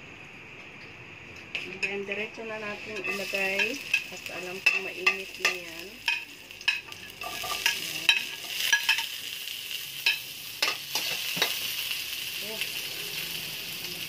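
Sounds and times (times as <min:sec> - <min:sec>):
garlic sizzling in hot oil: 0:01.8 - 0:14.0
spatula scraping metal wok: 0:02.6 - 0:12.0.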